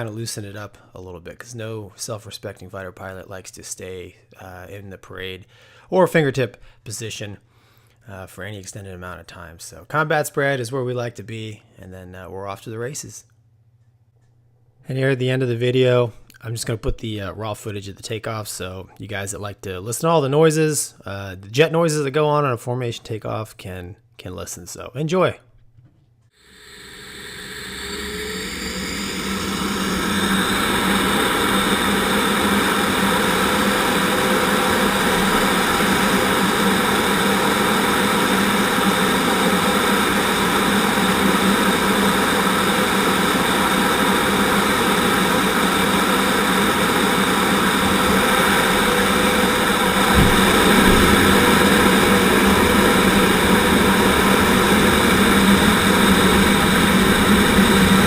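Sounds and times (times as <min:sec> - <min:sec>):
jet engines running: 0:26.4 - 0:58.0
single thump: 0:50.0 - 0:51.9.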